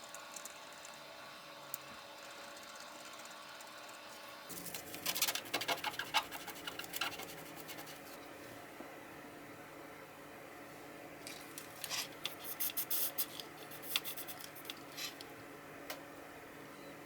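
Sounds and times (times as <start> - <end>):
faint steady hum: 0.0 - 17.0
scratching and clicking: 4.5 - 8.1, 11.8 - 15.3.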